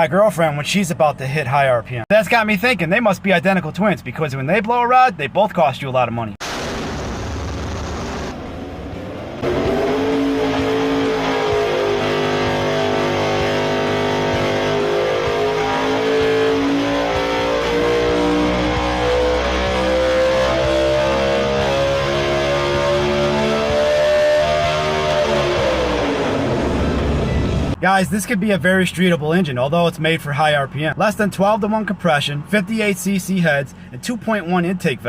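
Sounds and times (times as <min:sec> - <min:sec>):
race engine revving: 0:07.5 - 0:27.8.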